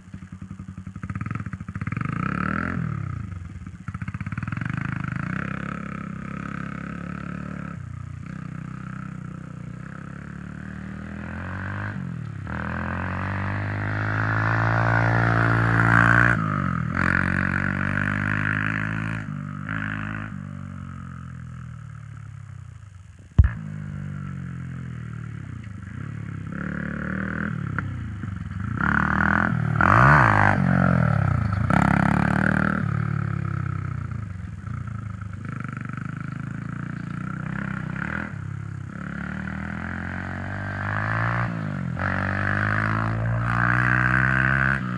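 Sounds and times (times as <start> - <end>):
dirt bike engine revving: 4.1 - 20.4, 25.9 - 33.9, 36.8 - 44.9
sharp knock: 23.4 - 23.9.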